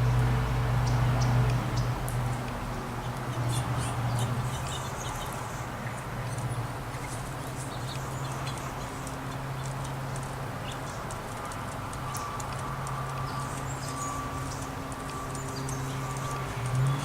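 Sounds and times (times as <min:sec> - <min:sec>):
songbirds chirping and twittering: 0:00.0 - 0:17.0
faint clicks: 0:07.9 - 0:17.0.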